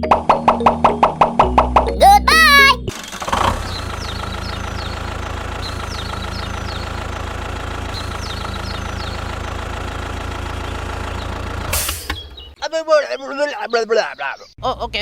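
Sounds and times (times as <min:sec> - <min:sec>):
engine idling: 0:03.0 - 0:11.7
birds chirping: 0:03.8 - 0:07.2, 0:07.8 - 0:09.6, 0:12.2 - 0:14.9.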